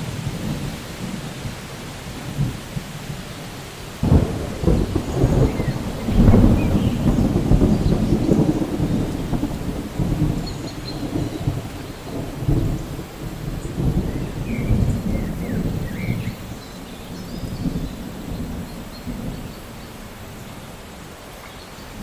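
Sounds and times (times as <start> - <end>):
steady rain: 0.0 - 22.0
thunder rumbling: 4.0 - 20.8.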